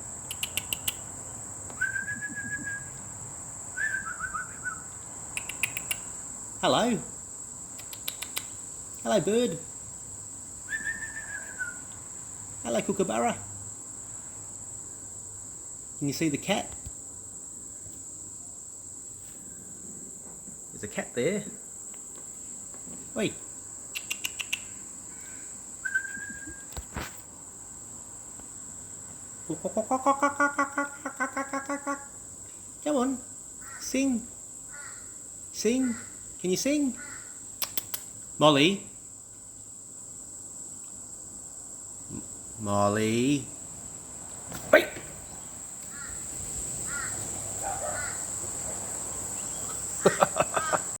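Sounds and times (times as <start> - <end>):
high insect drone: 0.0 - 51.0
short whistle: 1.8 - 3.0, 3.8 - 4.8, 10.7 - 11.8, 25.8 - 26.8
kookaburra harsh call: 29.7 - 32.2, 34.7 - 35.2, 35.8 - 36.2, 37.0 - 37.4, 46.9 - 48.3, 50.0 - 51.0
bird repeated calls: 34.7 - 35.2, 36.9 - 37.5, 44.6 - 48.3
single click: 37.6 - 38.1.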